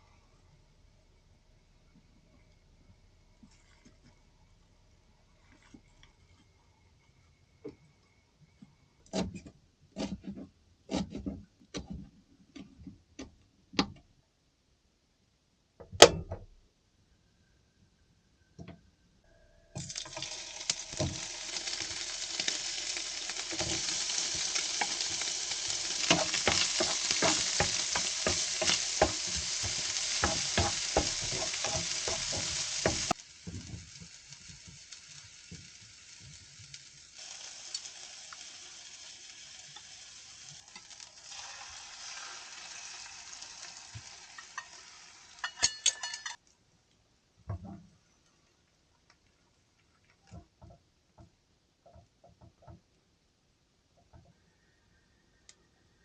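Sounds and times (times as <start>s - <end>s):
food sizzling in frying pan: 19.8s - 46.4s
stirring in pan: 19.9s - 38.6s, 39.3s - 46.4s.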